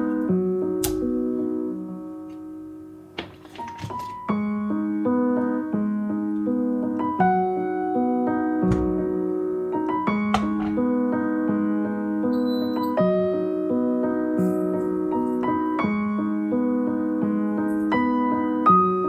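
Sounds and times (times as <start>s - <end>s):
short rustling: 2.2s - 4.4s.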